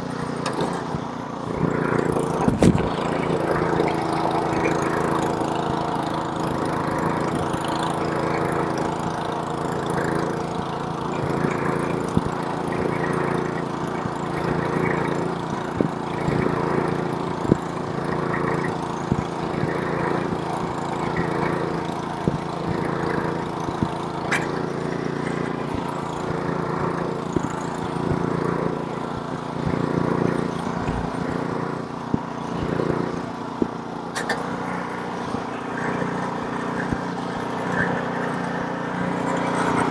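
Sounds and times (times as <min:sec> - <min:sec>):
snowblower engine running: 0:00.0 - 0:39.9
sharp clicks and knocks: 0:29.1 - 0:31.5.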